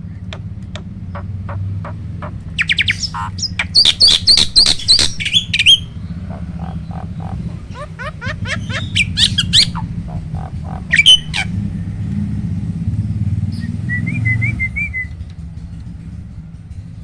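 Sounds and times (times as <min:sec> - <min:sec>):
motor traffic rumble: 0:00.0 - 0:17.0
starling calling: 0:00.2 - 0:12.0.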